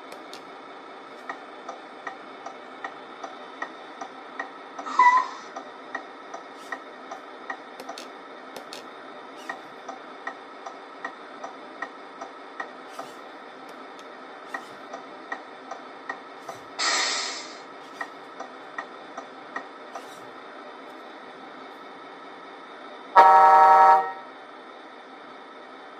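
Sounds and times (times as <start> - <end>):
loud hiss: 16.8 - 17.6.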